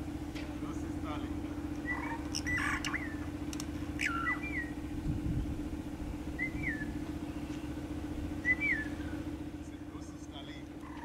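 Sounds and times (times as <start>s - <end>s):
vehicle engine idling: 0.0s - 11.0s
starling whistled calls: 1.8s - 3.3s, 4.0s - 4.8s, 6.3s - 7.8s, 8.4s - 9.3s.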